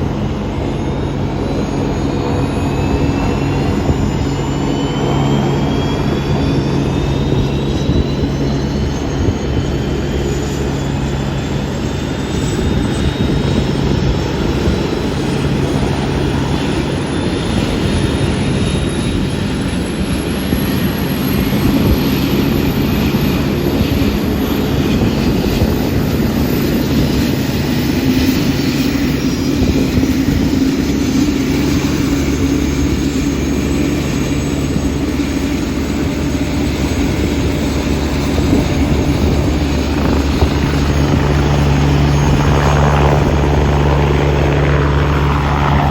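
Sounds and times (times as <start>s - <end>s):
helicopter engine whine: 0.0s - 45.9s.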